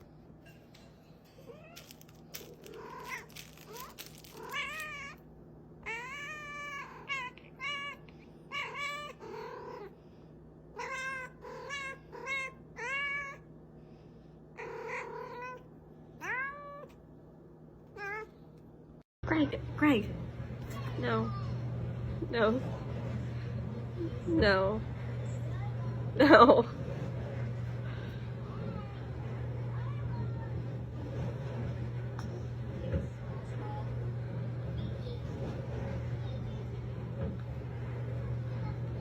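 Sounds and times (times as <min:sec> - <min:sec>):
cat meowing: 0:05.8 - 0:09.9, 0:14.6 - 0:15.6.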